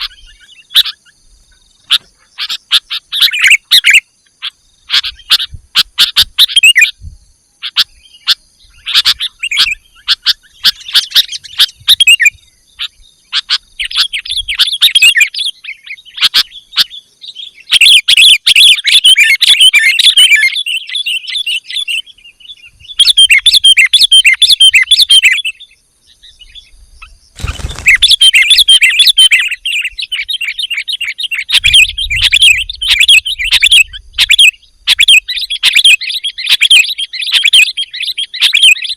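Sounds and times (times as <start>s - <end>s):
bird chirping and chattering: 0.0s - 7.0s, 7.6s - 38.9s.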